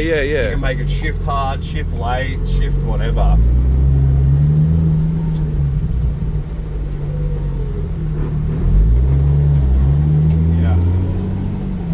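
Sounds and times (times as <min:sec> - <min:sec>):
car engine running: 0:00.0 - 0:11.9.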